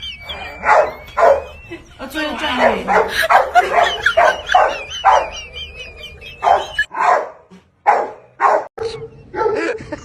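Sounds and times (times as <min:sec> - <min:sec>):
dog whining: 0:00.0 - 0:06.9
dog barking: 0:00.6 - 0:01.5, 0:02.6 - 0:05.4, 0:06.4 - 0:09.7.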